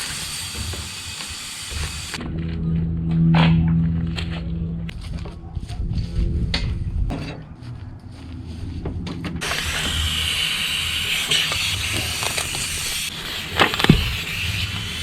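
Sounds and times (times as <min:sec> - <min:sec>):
air hissing into tire: 0:00.0 - 0:02.2, 0:09.4 - 0:15.0.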